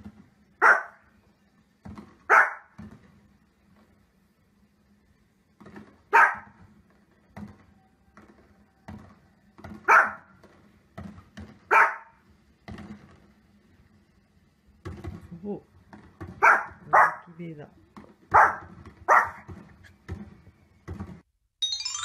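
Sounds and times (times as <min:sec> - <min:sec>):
television fireworks thuds: 0:00.0 - 0:00.6, 0:01.2 - 0:04.4, 0:05.1 - 0:16.9, 0:17.8 - 0:21.3
small dog barking: 0:00.6 - 0:01.0, 0:02.3 - 0:02.8, 0:06.1 - 0:06.6, 0:09.9 - 0:10.3, 0:11.7 - 0:12.2, 0:16.4 - 0:17.4, 0:18.3 - 0:19.5.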